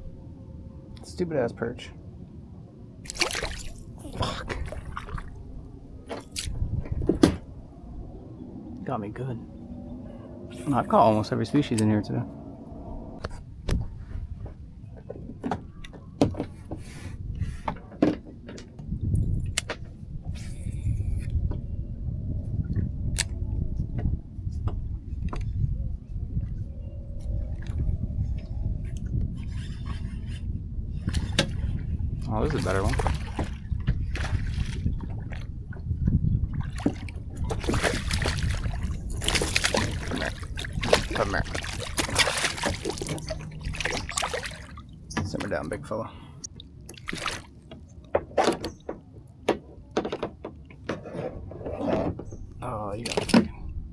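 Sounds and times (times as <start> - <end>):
steady low rumble: 0.0 - 17.7, 18.8 - 47.4, 52.1 - 53.9
wind on microphone: 2.5 - 46.1, 51.1 - 53.9
fish thrashing in water: 3.1 - 6.7, 32.5 - 35.5, 36.4 - 45.4, 46.8 - 47.7
knocks and clicks in kayak: 6.0 - 7.6, 13.2 - 20.0, 22.5 - 30.4, 31.0 - 53.8.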